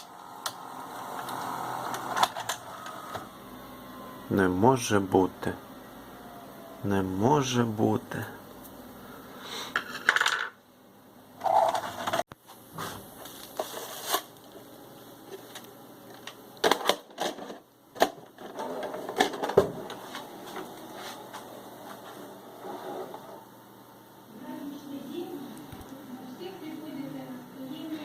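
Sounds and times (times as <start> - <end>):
video cassette recorder clicks and clatter: 1.2 - 3.2, 15.5 - 20.0.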